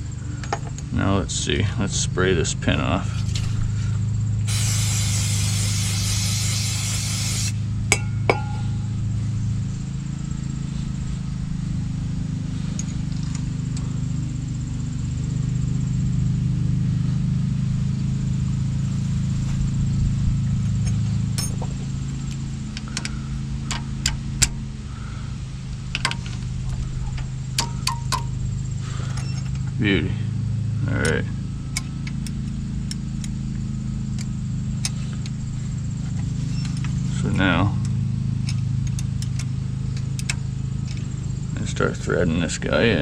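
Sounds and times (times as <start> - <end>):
steady low hum: 0.0 - 43.0
aerosol can spraying: 4.5 - 7.6
metallic clinks of tools: 7.9 - 9.0, 20.7 - 21.8, 26.0 - 28.4, 29.1 - 29.7.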